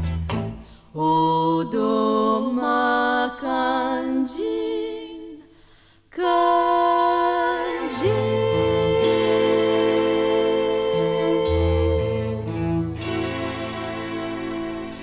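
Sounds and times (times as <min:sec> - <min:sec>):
person singing wordless held notes: 0:06.2 - 0:12.4.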